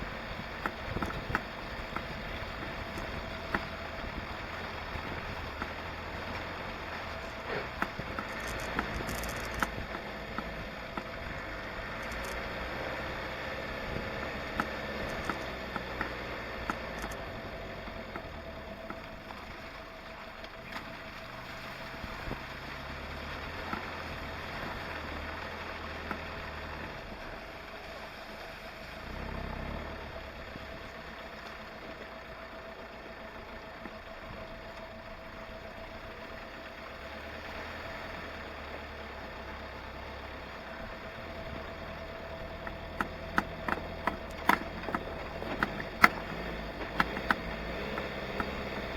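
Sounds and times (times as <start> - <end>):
vehicle engine idling: 0.0 - 48.9
small clicks and knocks: 0.6 - 4.2, 7.6 - 12.5, 14.5 - 17.2, 42.5 - 48.9.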